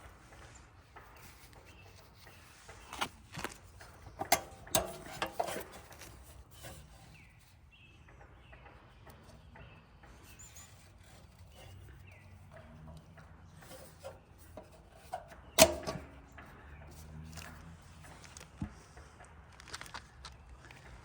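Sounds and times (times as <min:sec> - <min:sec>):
faint rubbing and scraping: 0:00.0 - 0:19.2
sharp clicks and knocks: 0:00.0 - 0:20.0.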